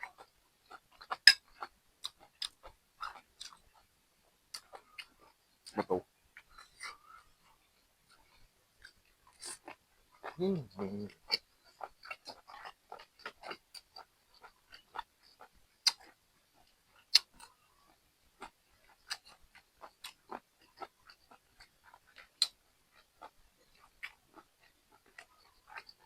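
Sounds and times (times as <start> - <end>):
person chewing: 0.0 - 3.9, 4.5 - 5.8, 6.4 - 26.0
wet mouth clicks and smacks: 15.8 - 16.2.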